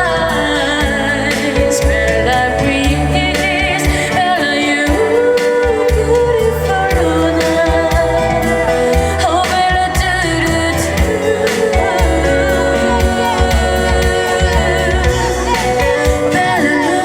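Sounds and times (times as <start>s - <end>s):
instrumental backing track: 0.0s - 17.0s
person singing with vibrato: 0.0s - 17.0s.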